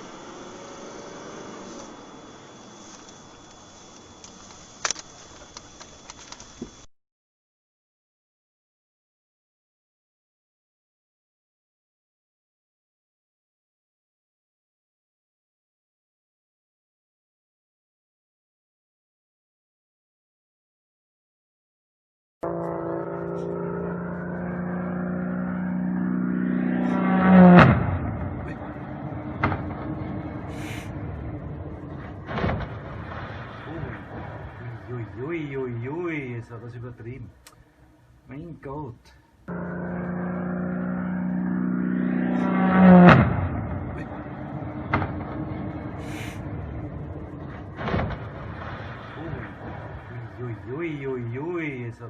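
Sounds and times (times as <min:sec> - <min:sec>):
rushing noise: 0:00.0 - 0:05.4, 0:27.7 - 0:37.1, 0:40.8 - 0:52.0
airplane engine drone: 0:00.0 - 0:06.9, 0:22.4 - 0:52.0
rough noisy rumble: 0:00.0 - 0:06.9, 0:22.4 - 0:52.0
sharp crack: 0:27.5 - 0:36.0, 0:42.6 - 0:51.2
loud impact: 0:27.6 - 0:35.3, 0:42.5 - 0:50.6.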